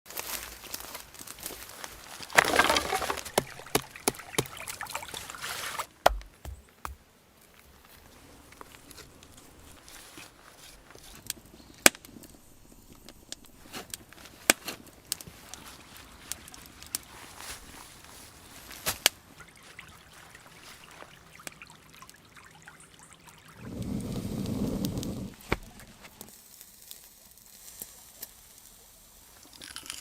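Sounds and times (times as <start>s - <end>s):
brush rustling and crackling: 0.1s - 21.3s
wood knocking: 2.3s - 4.6s, 6.0s - 7.0s.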